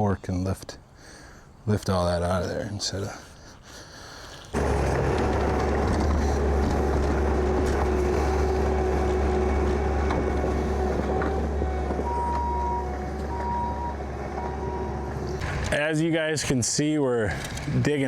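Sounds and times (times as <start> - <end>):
heavy vehicle engine humming: 4.6 - 16.0
reversing alarm beeping: 6.4 - 15.6.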